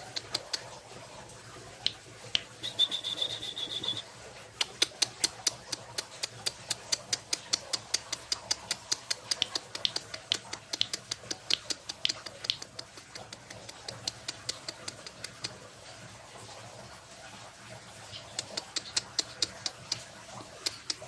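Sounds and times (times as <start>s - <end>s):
bird clicking and ticking: 0.0s - 0.8s, 4.6s - 15.6s, 18.1s - 21.0s.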